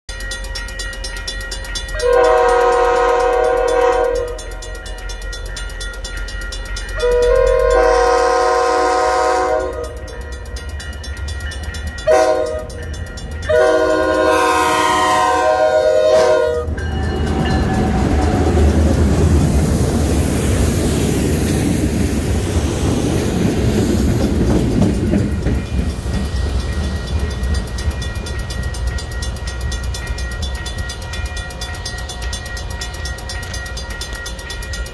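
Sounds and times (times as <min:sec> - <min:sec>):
train rumbling past: 0:00.1 - 0:34.9
locomotive air horn blasts: 0:02.0 - 0:04.5, 0:07.0 - 0:10.2, 0:12.1 - 0:12.8, 0:13.5 - 0:16.9.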